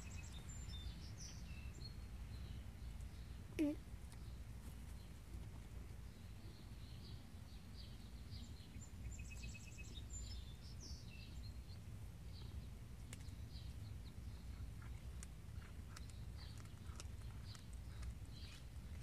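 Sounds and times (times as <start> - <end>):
songbirds chirping and trilling: 0.0 - 19.0.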